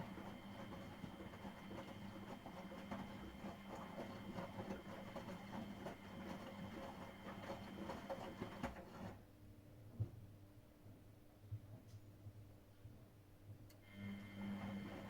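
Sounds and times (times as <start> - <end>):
washing machine motor humming: 0.0 - 9.2, 13.8 - 15.0.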